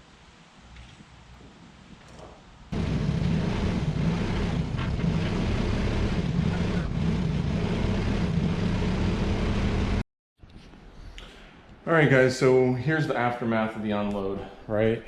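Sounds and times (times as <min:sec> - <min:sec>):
vehicle engine running: 0:02.7 - 0:10.0.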